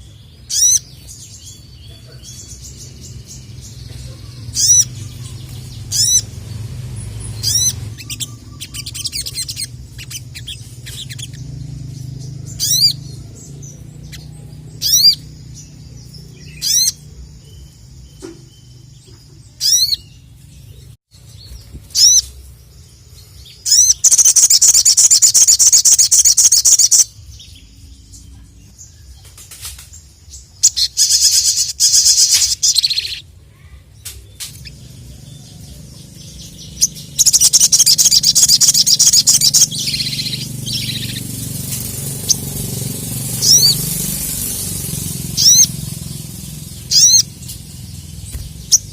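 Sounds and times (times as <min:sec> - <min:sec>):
bird chirping and trilling: 0:00.0 - 0:29.3, 0:29.9 - 0:48.9.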